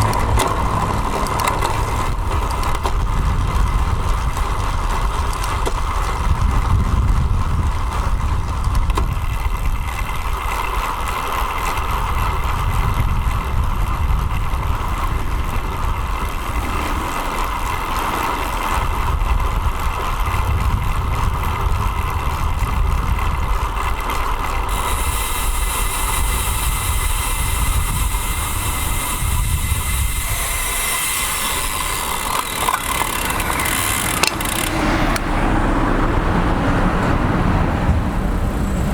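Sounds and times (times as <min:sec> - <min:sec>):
traffic: 0:00.0 - 0:38.9
wind and road noise: 0:00.0 - 0:38.9
high hiss: 0:24.8 - 0:32.3.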